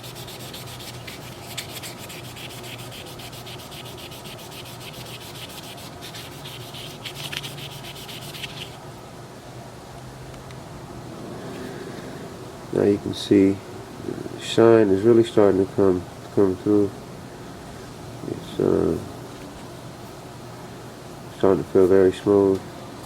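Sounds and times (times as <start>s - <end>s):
sanding pad rubbing plastic: 0.0s - 8.8s.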